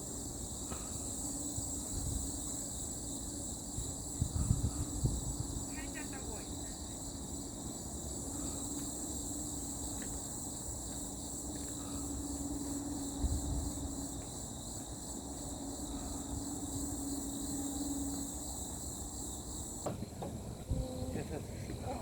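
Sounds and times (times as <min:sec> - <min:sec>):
crickets and insects chirping: 0:00.0 - 0:22.0.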